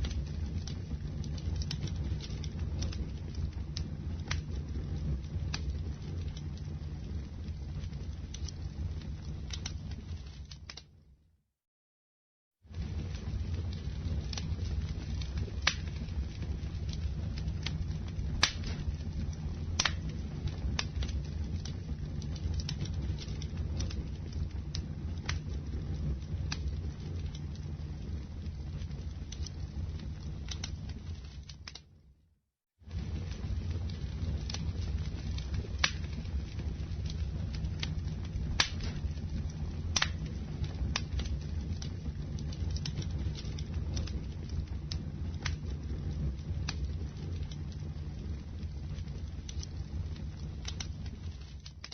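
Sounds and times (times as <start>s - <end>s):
wood crackling and popping: 0.0s - 11.0s, 12.7s - 32.0s, 32.8s - 51.9s
low rumble of flames: 0.0s - 11.3s, 12.5s - 51.9s.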